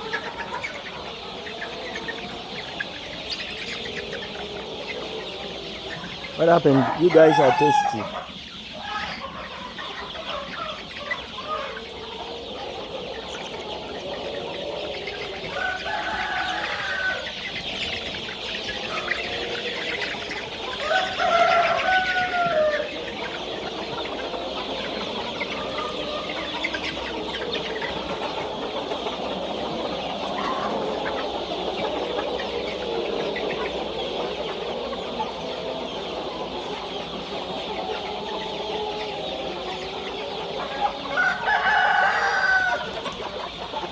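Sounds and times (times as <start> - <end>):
chickens clucking: 0.0 - 43.9
rooster crowing: 6.4 - 8.3, 15.5 - 17.4, 20.7 - 23.0, 41.1 - 43.0.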